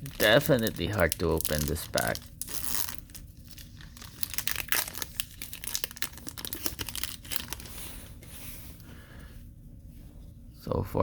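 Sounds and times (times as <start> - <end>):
foil pack tearing and crinkling: 0.0 - 7.9.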